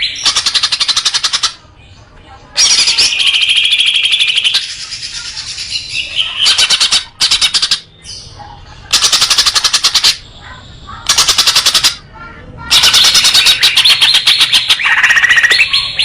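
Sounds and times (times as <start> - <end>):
soft bird chattering: 0.0 - 16.0
songbird rattling trills: 8.9 - 10.2.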